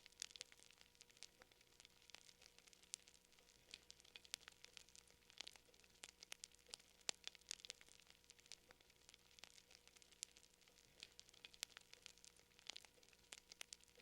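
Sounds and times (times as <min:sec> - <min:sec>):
faint crackling fire: 0:00.0 - 0:14.0
faint steady hum: 0:00.0 - 0:14.0.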